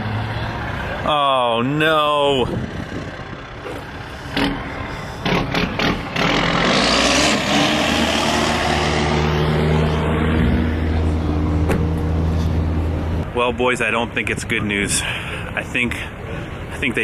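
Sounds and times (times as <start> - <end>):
vehicle engine running: 0.0 - 6.8
loud rushing noise: 4.3 - 13.1.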